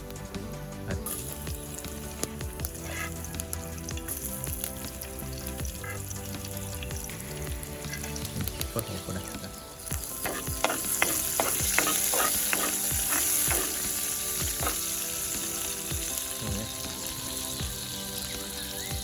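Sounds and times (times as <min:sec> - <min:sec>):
food sizzling in a hot pan: 0:01.0 - 0:19.0
spoon scraping a pan: 0:10.0 - 0:15.0.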